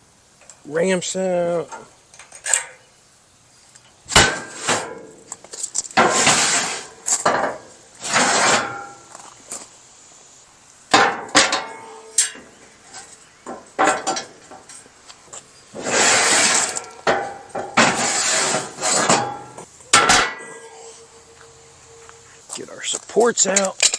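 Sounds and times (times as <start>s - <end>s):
metal ramps clanking: 4.1s - 9.3s, 10.9s - 14.9s, 15.7s - 20.8s
metal scraping: 4.1s - 9.4s, 11.0s - 23.9s.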